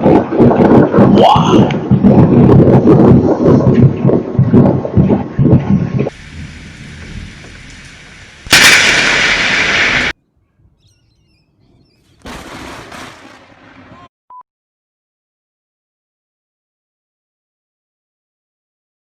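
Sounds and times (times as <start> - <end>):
steady hiss: 6.1 - 10.1
loud thunder crack: 8.5 - 10.2, 12.2 - 13.6.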